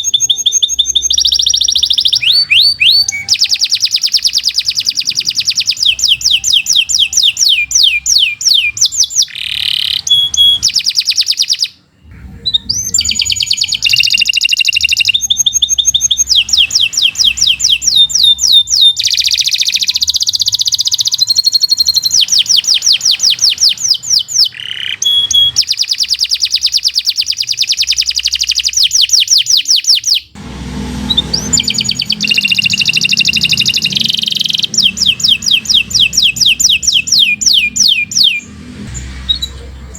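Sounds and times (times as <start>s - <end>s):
canary singing trills: 0.0s - 30.4s, 31.0s - 39.9s.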